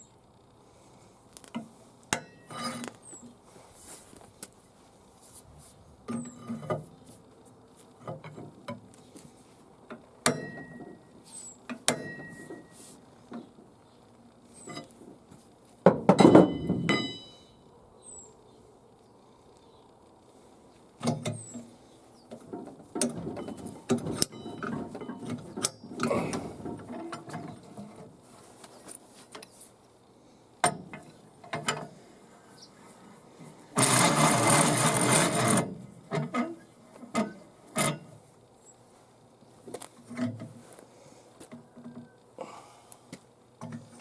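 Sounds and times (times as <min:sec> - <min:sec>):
metal tools clinking and knocking: 0:23.0 - 0:27.6.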